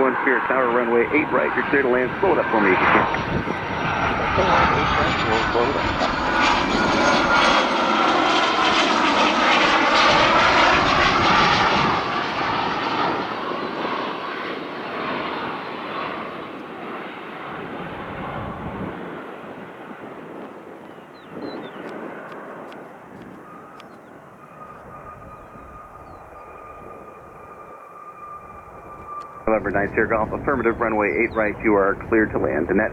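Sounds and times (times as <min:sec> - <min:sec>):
airplane engine passing: 0:00.0 - 0:32.9.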